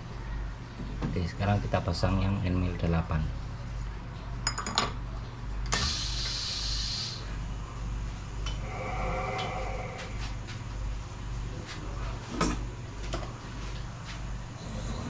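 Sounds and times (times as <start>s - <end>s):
steady low hum: 0.0s - 15.0s
hiss: 5.7s - 7.4s, 8.6s - 10.4s.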